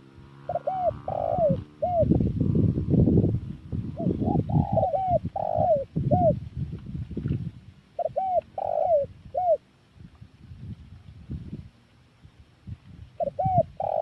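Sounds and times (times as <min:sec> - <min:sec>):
dove cooing: 0:00.0 - 0:06.4, 0:08.0 - 0:09.6, 0:13.2 - 0:14.0.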